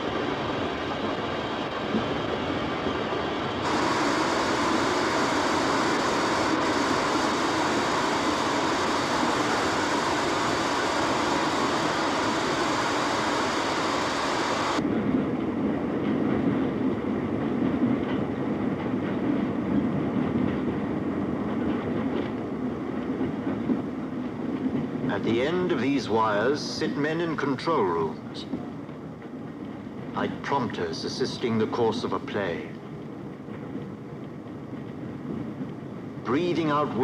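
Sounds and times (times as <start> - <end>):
steam train rushing hiss: 3.0 - 14.8
wheels clickety-clack: 15.0 - 26.2, 31.6 - 37.0.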